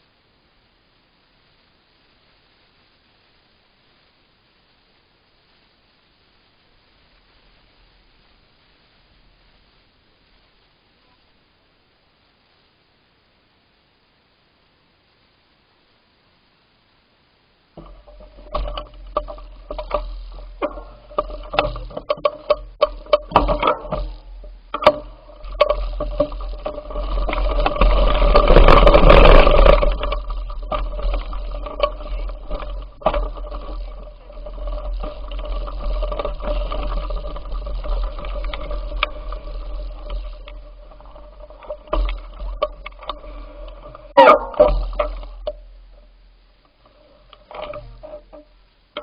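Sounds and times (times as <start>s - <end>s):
steady hum: 0.0s - 49.0s
bicycle rattling and knocking: 17.8s - 46.2s, 46.8s - 49.0s.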